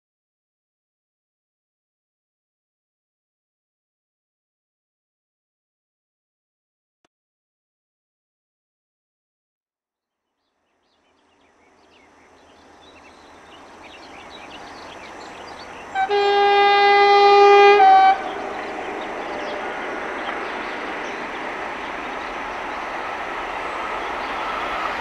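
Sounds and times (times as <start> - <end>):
electric train rumbling: 11.3 - 25.0
two-note train horn blast: 15.9 - 19.8.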